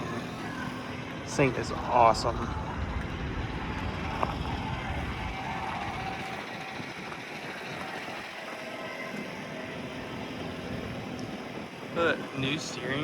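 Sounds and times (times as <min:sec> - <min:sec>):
low rumble: 0:01.7 - 0:07.1.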